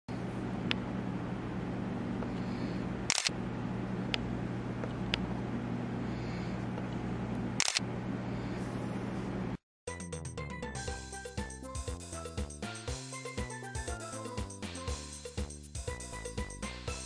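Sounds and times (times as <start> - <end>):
steady low hum: 0.1 - 9.6.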